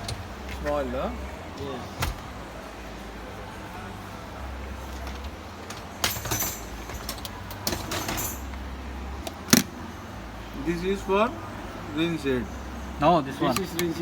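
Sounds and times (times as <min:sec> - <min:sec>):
dishwasher parts clicking and rattling: 0:04.8 - 0:08.6.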